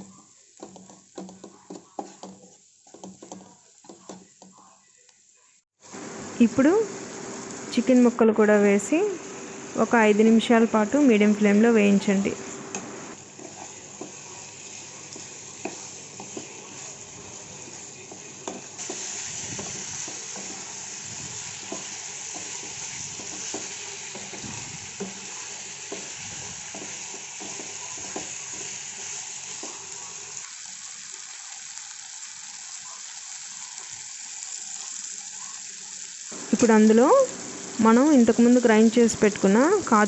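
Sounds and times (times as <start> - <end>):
chicken frying in oil: 12.5 - 40.0.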